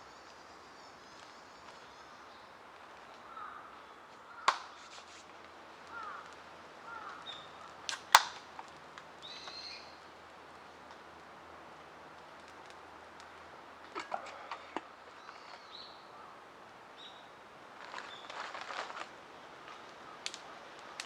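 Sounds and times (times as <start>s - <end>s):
sharp cracks: 4.2s - 9.2s, 12.1s - 15.0s, 19.7s - 21.0s
faint clicks: 19.7s - 21.0s.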